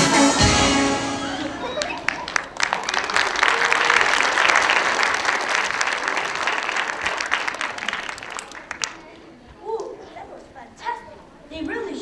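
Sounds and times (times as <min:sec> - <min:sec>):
performance music: 0:00.0 - 0:03.5
audience applause: 0:00.0 - 0:09.1.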